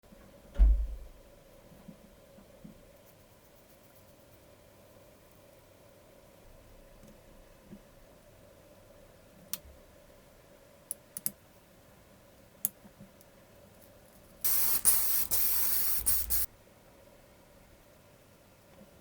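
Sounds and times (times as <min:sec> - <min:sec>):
pressurised spray hissing: 0:14.4 - 0:16.5.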